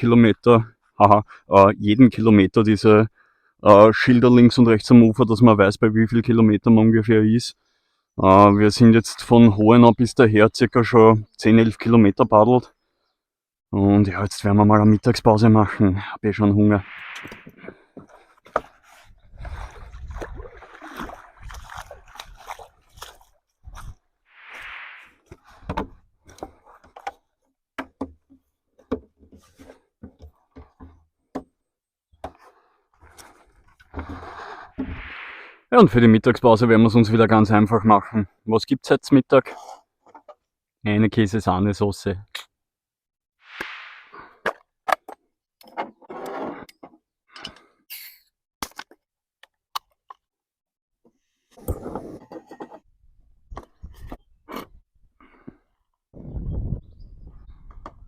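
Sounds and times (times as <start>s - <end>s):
camping gear clicking and clattering: 32.2s - 34.3s, 51.5s - 52.9s.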